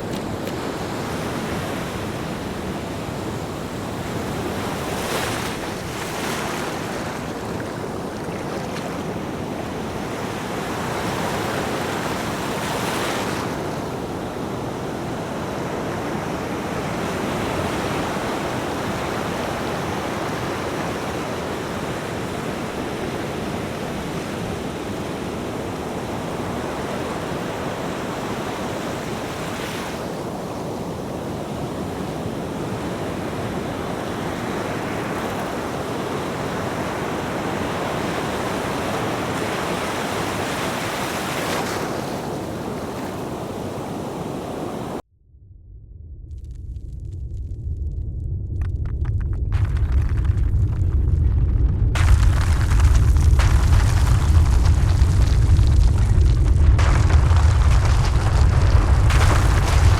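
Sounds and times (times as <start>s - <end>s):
seawater rushing in waves: 0.0s - 45.0s, 52.0s - 59.9s
wind buffeting microphone: 46.0s - 59.9s.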